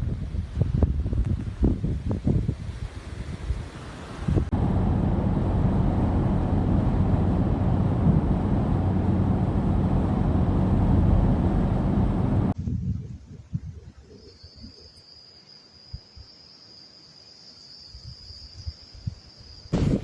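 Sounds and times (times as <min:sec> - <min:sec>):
rushing wind-like noise: 0:00.0 - 0:14.2, 0:18.6 - 0:20.0
engine drone: 0:04.5 - 0:12.6.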